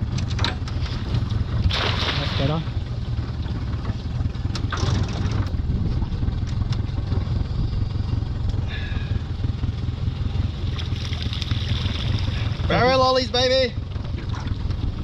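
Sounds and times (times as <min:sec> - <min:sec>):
outboard motor running: 0:00.0 - 0:15.0
water noise: 0:00.0 - 0:15.0
wind noise: 0:05.1 - 0:08.2.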